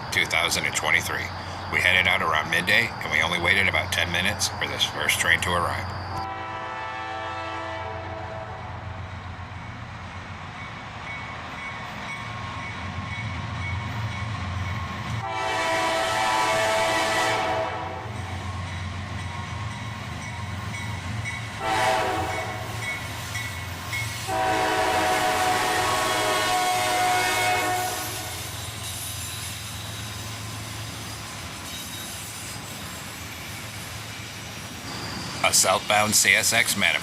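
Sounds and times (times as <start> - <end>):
diesel engines rumbling: 0.0 - 37.0
train air horn blasts: 6.2 - 8.8, 15.2 - 18.2, 21.6 - 22.8, 24.2 - 28.8.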